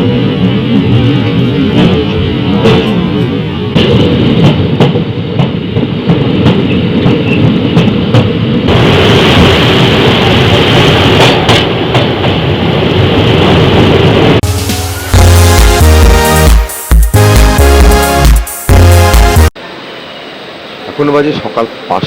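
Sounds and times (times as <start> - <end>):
train rumbling on track: 0.0 - 17.9
music: 14.4 - 19.6.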